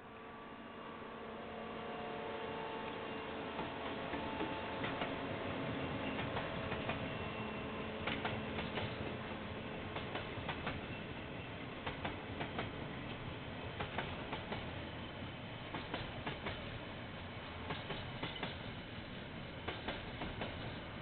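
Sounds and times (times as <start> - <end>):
train wagons rolling past: 2.8 - 21.0
wheels clicking over rail joints: 17.5 - 18.7.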